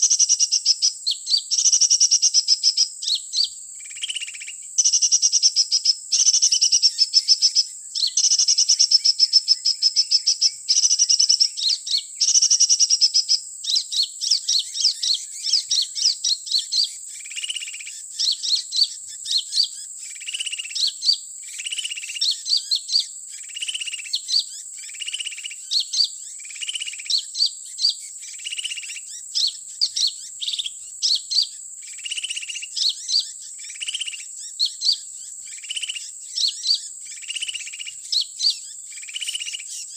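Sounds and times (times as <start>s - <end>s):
bird chirps and whistled notes: 0.0s - 39.9s.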